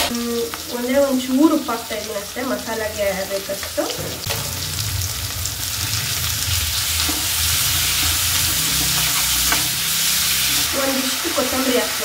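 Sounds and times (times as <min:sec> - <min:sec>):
onions sizzling in hot oil: 0:00.0 - 0:12.0
steel ladle scraping pan: 0:04.1 - 0:10.7.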